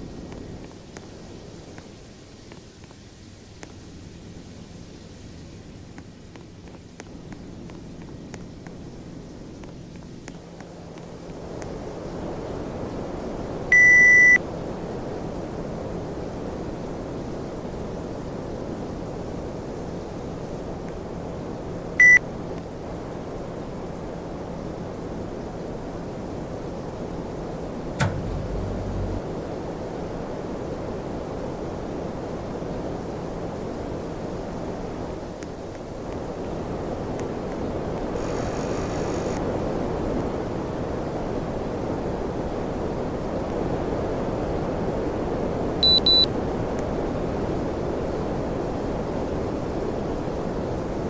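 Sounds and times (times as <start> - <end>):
faint low hum: 13.7 - 14.4, 28.0 - 29.3
high beep: 13.7 - 14.4, 22.0 - 22.2, 28.0 - 29.2, 45.8 - 46.3
air conditioner rushing air: 28.0 - 29.3.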